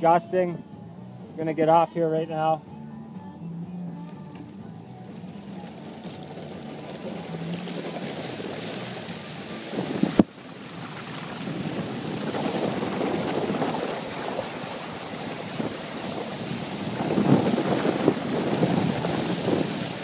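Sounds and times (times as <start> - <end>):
lake waves rushing: 5.0 - 20.0
wind buffeting microphone: 5.0 - 20.0.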